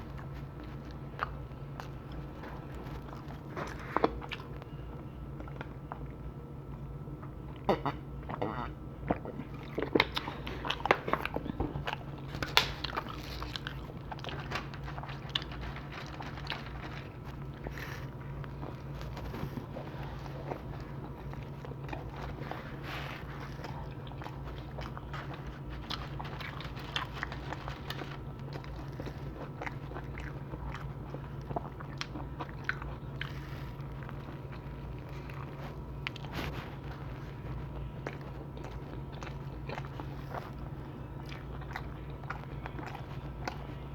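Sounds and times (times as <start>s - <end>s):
constant low hum: 0.0s - 43.9s
person chewing pizza: 0.0s - 43.9s.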